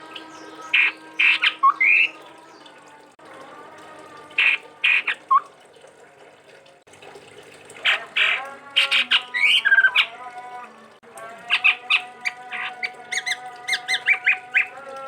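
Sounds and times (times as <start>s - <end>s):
bird harsh calls: 0.0s - 2.2s, 4.4s - 5.4s, 7.8s - 10.2s, 11.5s - 14.7s.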